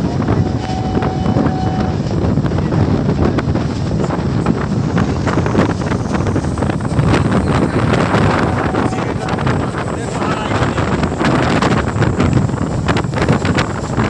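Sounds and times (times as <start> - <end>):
moving train rumble: 0.0 - 14.0
wind buffeting microphone: 0.0 - 14.0.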